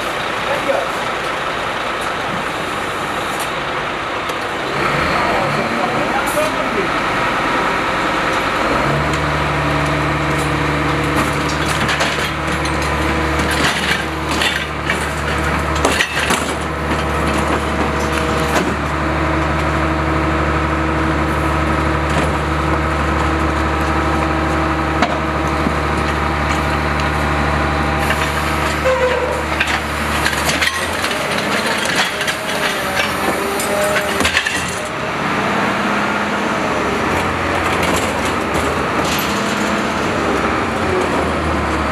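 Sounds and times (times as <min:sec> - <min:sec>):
garbage truck engine drone: 0:00.0 - 0:41.9
refuse and bins clattering: 0:08.7 - 0:19.0, 0:21.3 - 0:35.0, 0:37.0 - 0:41.9.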